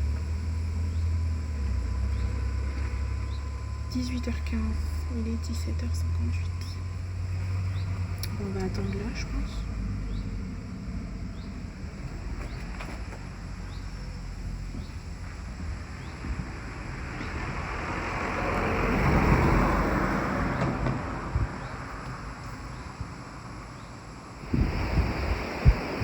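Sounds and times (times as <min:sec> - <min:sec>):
vehicle driving past: 0:00.0 - 0:23.1
low traffic rumble: 0:00.0 - 0:26.0.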